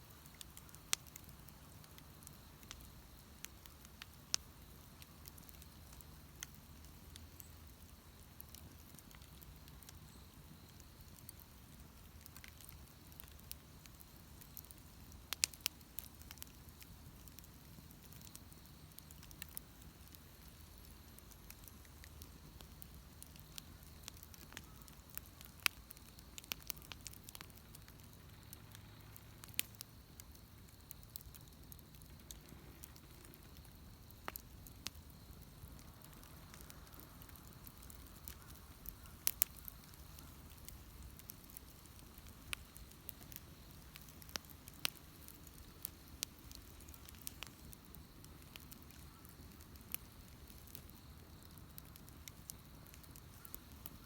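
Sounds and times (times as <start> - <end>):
bonfire crackling and popping: 0.0 - 54.0.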